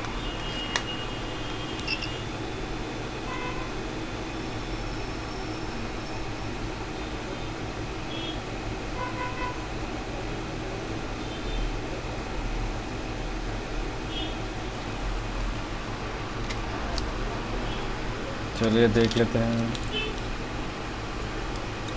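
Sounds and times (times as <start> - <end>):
faint short beeps: 1.8 - 2.3
equipment hum and hiss: 13.4 - 21.9.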